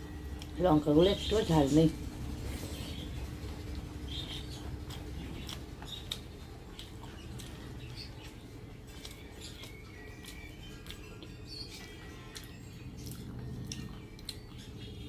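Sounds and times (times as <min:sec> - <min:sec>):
low steady hum: 0:00.0 - 0:15.0
mouth chewing food: 0:00.0 - 0:15.0.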